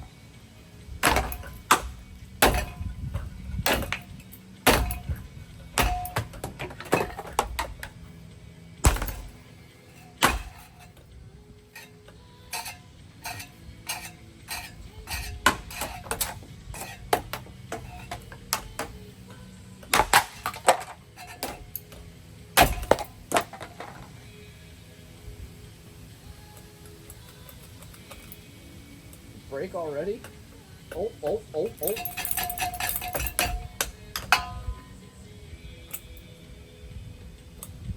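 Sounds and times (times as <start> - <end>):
knocks and clattering: 1.0 - 8.0, 8.8 - 11.0, 12.6 - 19.1, 19.8 - 22.0, 22.6 - 24.1, 31.8 - 34.9.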